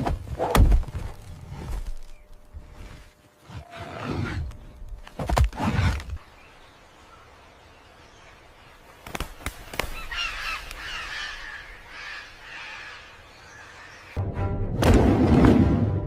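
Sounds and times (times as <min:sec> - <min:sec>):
bird calling: 0:09.6 - 0:14.2.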